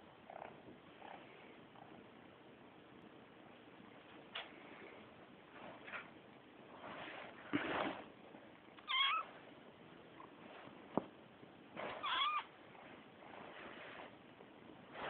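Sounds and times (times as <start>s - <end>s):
soft rustling: 3.4s - 15.0s
kitten meowing: 8.8s - 9.3s, 12.0s - 12.5s.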